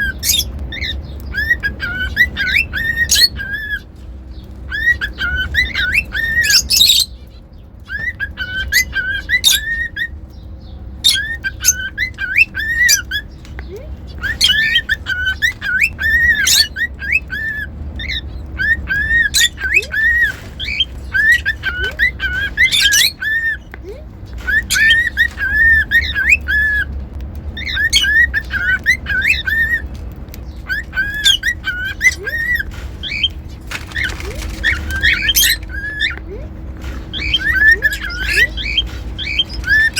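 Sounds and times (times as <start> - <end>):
cockatiel whistling: 0.0 - 3.9, 4.7 - 7.1, 7.9 - 10.2, 11.1 - 13.3, 14.2 - 23.6, 24.4 - 26.9, 27.6 - 29.8, 30.6 - 33.4, 34.0 - 36.2, 37.0 - 39.9
steady low hum: 0.0 - 39.9.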